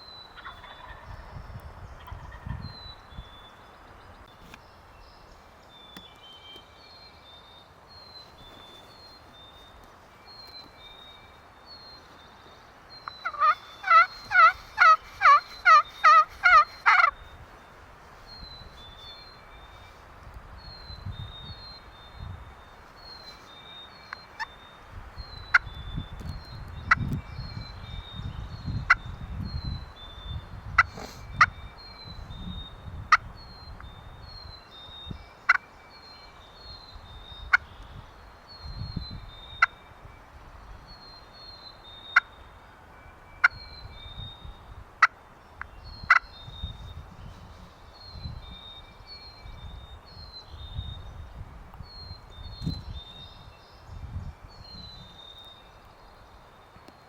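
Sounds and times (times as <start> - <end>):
wild turkey calling: 0.4 - 1.1, 13.0 - 17.4, 35.4 - 36.4, 45.0 - 46.6.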